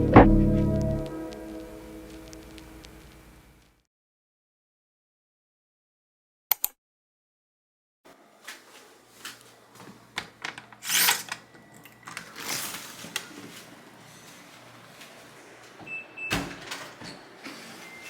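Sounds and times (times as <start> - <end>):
knocks and clicks: 0.0 - 1.4.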